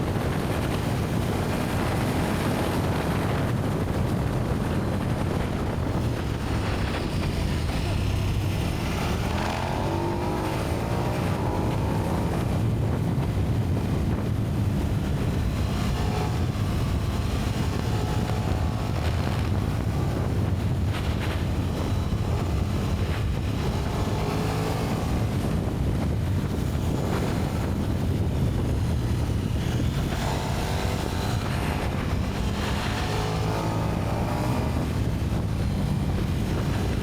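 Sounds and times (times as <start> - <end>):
motorcycle engine under way: 0.0 - 37.0
wind rushing over microphone: 0.0 - 37.0.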